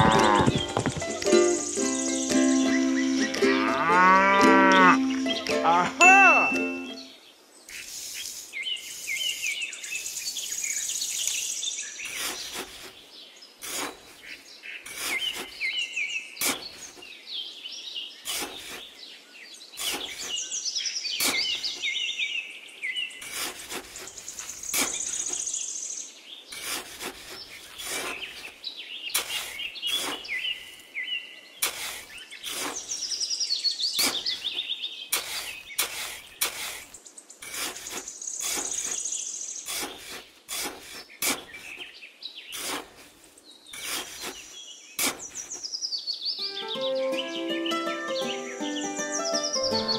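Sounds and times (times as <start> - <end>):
small birds chirping: 0.0 - 49.9
trowel digging into damp sand: 12.0 - 13.0, 13.6 - 15.8, 16.4 - 17.0, 18.2 - 19.0, 19.8 - 20.5, 21.1 - 21.8, 23.2 - 25.6, 26.5 - 30.8, 31.6 - 33.2, 34.0 - 41.9, 42.5 - 45.7.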